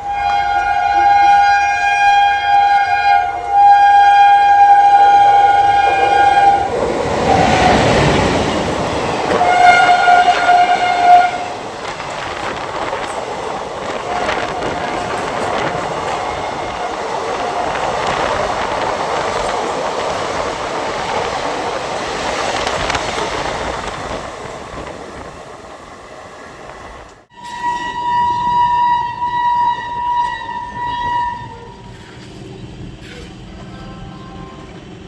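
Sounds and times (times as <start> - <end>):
train horn blast: 0.0 - 8.5, 9.3 - 12.7, 13.8 - 18.8, 27.3 - 32.4, 33.0 - 34.9
train wheel and rail noise: 0.0 - 35.0.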